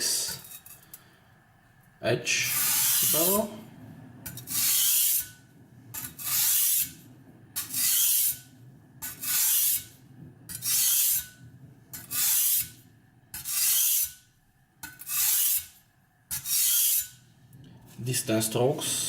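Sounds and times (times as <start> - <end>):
knife scraping sharpening stone: 0.3 - 1.0, 2.5 - 3.2, 4.3 - 5.4, 6.0 - 7.0, 7.6 - 8.4, 9.0 - 9.9, 10.5 - 11.3, 11.9 - 17.2.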